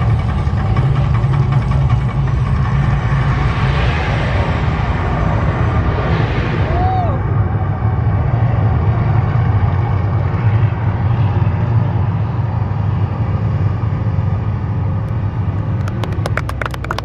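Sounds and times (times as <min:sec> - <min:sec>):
deep steady rumble: 0:00.0 - 0:17.0
sharp claps: 0:15.1 - 0:17.0.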